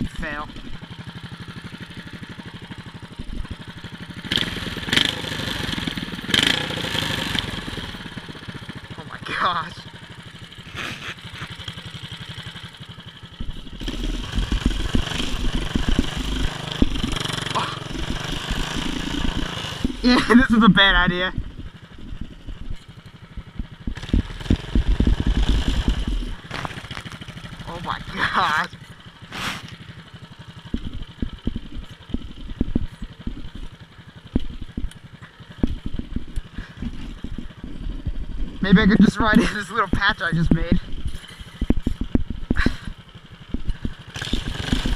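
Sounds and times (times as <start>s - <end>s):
small engine idling and revving: 0.0s - 44.9s
small engine revving in surges: 4.2s - 8.3s, 13.7s - 21.3s, 23.8s - 29.8s, 43.8s - 44.9s.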